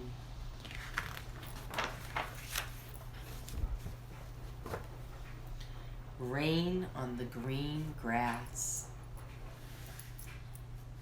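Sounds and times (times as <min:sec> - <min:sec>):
low room hum: 0:00.0 - 0:11.0
book pages rustling and turning: 0:00.6 - 0:05.2.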